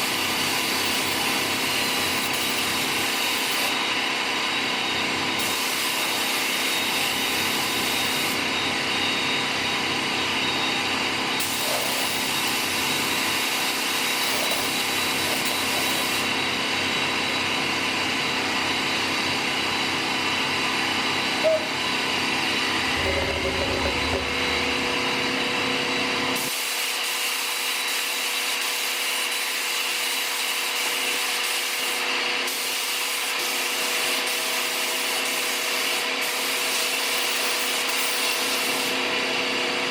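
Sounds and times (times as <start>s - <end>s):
power tool whine: 0.0s - 26.7s.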